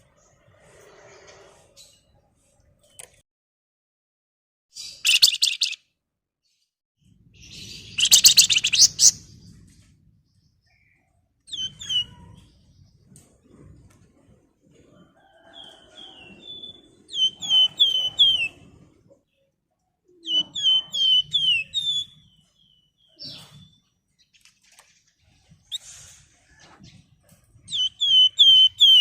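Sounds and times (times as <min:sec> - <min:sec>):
songbird whistling: 0:05.0 - 0:05.8, 0:07.5 - 0:09.2, 0:11.5 - 0:12.2, 0:16.0 - 0:18.6, 0:20.2 - 0:23.9, 0:27.7 - 0:29.0.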